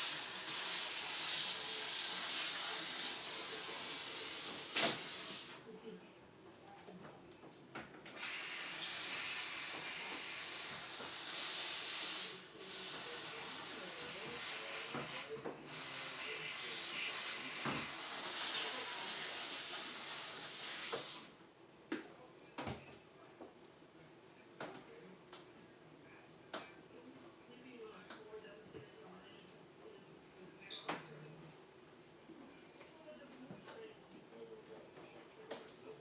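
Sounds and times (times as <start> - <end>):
steady hiss: 0.0 - 5.6, 8.2 - 21.4.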